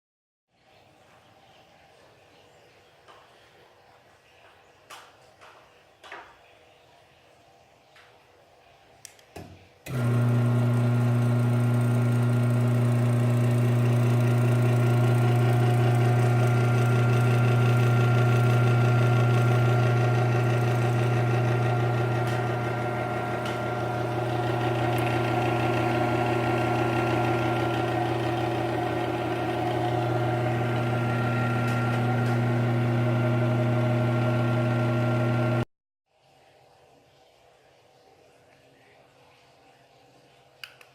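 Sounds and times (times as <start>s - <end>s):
garage door motor humming: 9.8s - 35.7s.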